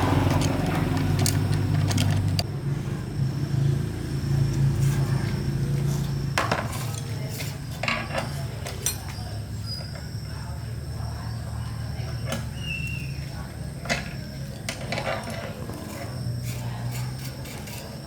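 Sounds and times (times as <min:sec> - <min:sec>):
metal tools clinking: 0:00.1 - 0:02.4.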